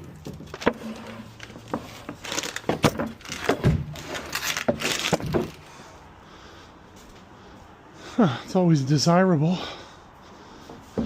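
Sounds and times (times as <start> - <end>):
boards knocking and thudding: 0.0 - 5.6
boards scraping and clattering: 0.0 - 5.8.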